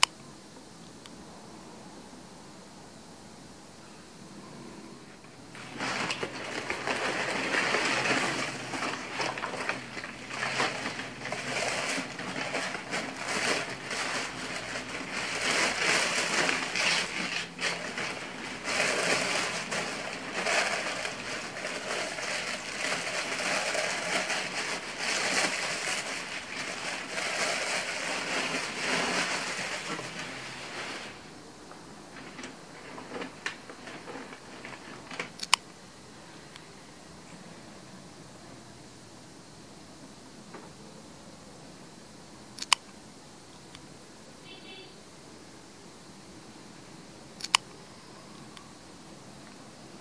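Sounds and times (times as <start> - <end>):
paper rustling and crinkling: 5.5 - 31.3, 32.1 - 35.4.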